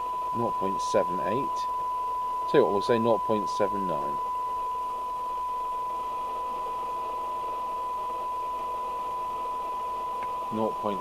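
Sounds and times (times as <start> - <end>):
faint radio hiss: 0.0 - 11.0
steady test tone: 0.0 - 11.0.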